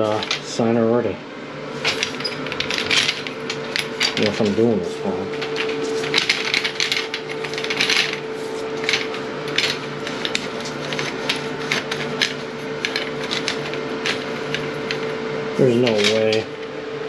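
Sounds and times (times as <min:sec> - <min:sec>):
steady hum: 0:00.0 - 0:17.0
toilet auger cable scraping: 0:01.7 - 0:16.5.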